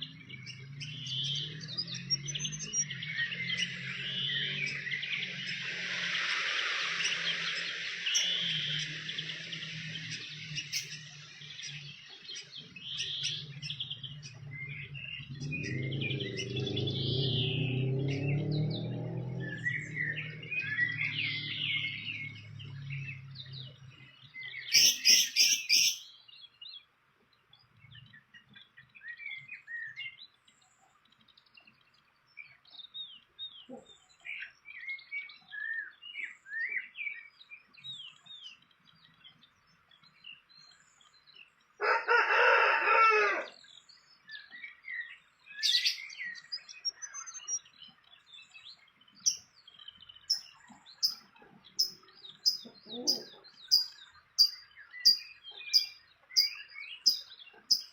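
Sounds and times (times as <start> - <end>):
small birds chirping: 0.0 - 41.8, 43.5 - 57.9
rooster crowing: 41.8 - 43.5, 57.1 - 57.8.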